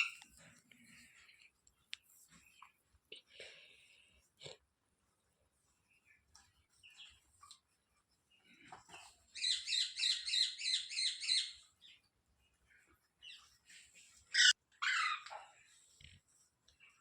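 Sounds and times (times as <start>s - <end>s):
parrot chirping: 9.4s - 11.6s, 14.3s - 15.4s.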